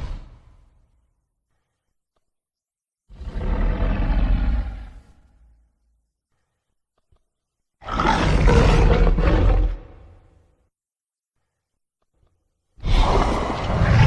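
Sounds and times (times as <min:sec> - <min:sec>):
deep rough creature roars: 0:03.1 - 0:05.1, 0:07.8 - 0:10.3, 0:12.8 - 0:14.0.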